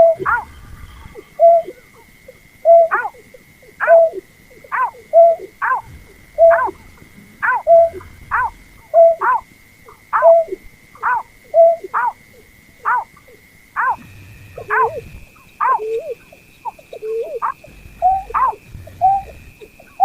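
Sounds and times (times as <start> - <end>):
steady high whine: 0.0 - 20.0.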